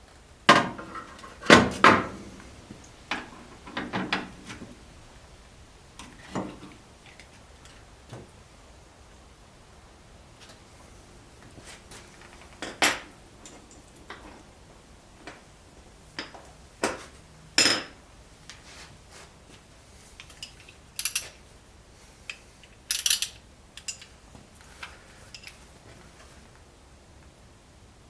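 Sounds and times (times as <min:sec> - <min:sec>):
metal hand tools clanking: 0:20.2 - 0:21.4, 0:22.6 - 0:24.2
ratchet clicks: 0:20.2 - 0:21.4, 0:22.3 - 0:24.2.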